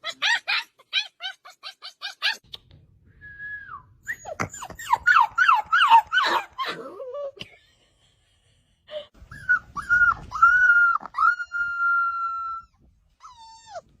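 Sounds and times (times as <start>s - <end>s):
puppy whining: 0.0s - 2.5s, 4.0s - 7.4s, 9.2s - 14.0s.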